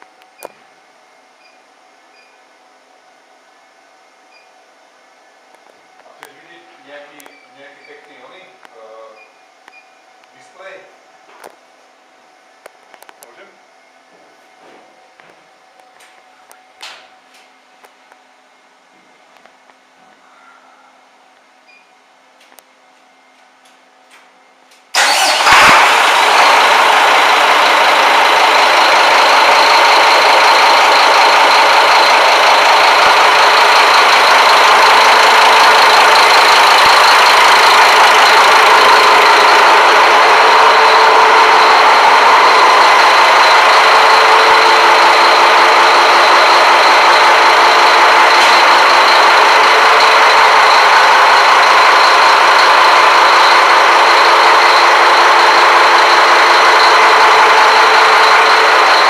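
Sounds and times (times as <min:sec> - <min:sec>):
diesel engine starting and running: 0:23.6 - 0:59.0.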